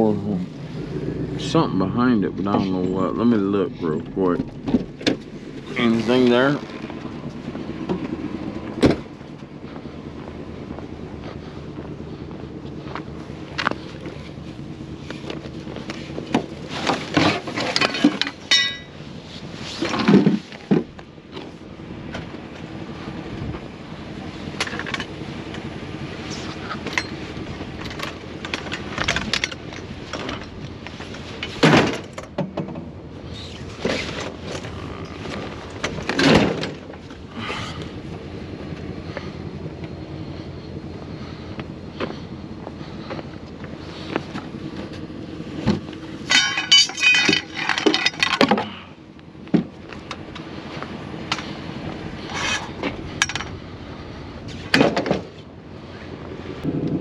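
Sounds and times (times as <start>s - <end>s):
junk clanking and rattling: 0.0s - 57.0s
vehicle engine idling: 0.0s - 57.0s
loud thuds: 4.0s - 5.9s.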